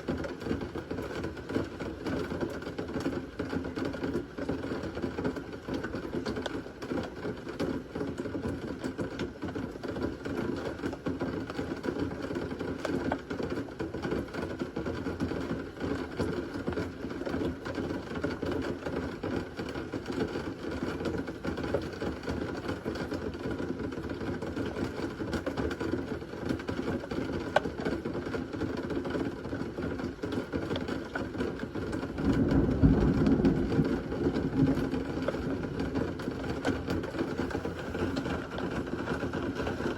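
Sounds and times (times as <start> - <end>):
steady rain: 0.0 - 39.9
low thunder rumble: 32.1 - 37.7.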